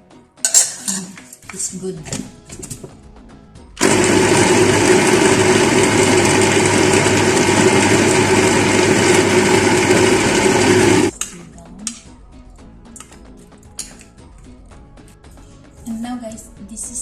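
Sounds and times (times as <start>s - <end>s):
electric blender running: 3.8s - 11.1s.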